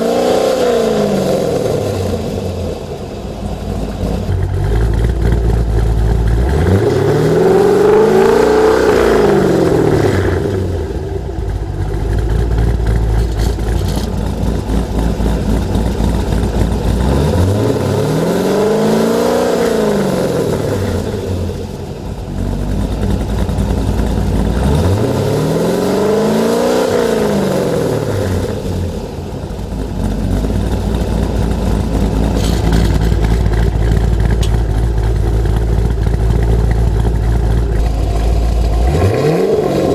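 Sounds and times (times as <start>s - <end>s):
car engine idling: 0.0s - 39.9s
car engine revving: 0.0s - 39.9s.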